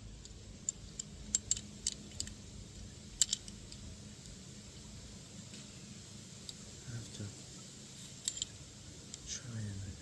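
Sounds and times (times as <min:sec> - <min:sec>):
small metal parts clinking: 0:00.0 - 0:04.4, 0:08.0 - 0:09.2
faint low hum: 0:00.0 - 0:10.0.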